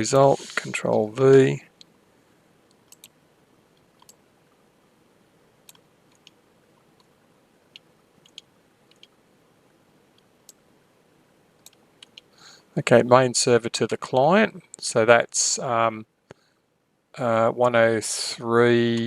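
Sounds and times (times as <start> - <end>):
mouse and keyboard clicks: 7.8 - 9.2.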